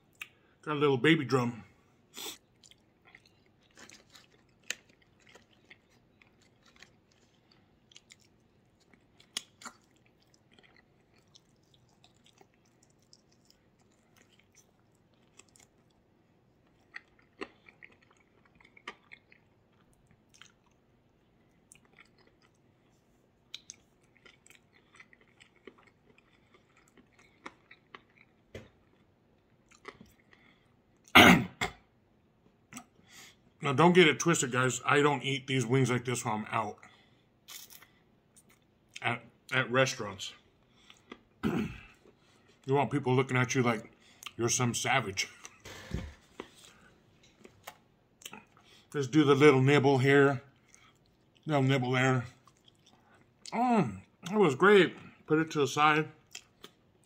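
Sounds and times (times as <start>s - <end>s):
man chewing food: 2.0s - 31.1s, 36.8s - 39.0s, 40.3s - 42.7s, 45.4s - 49.0s, 50.5s - 51.5s, 52.3s - 54.3s, 56.2s - 57.0s.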